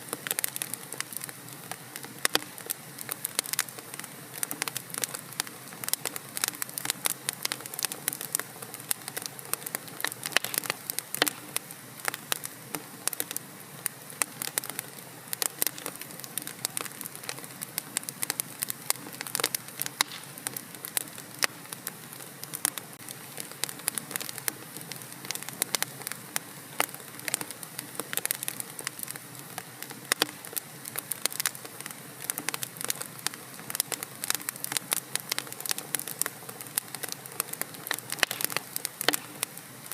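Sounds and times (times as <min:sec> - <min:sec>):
soft hiss of fire: 0:00.0 - 0:39.9
wood fire crackling: 0:00.0 - 0:39.9.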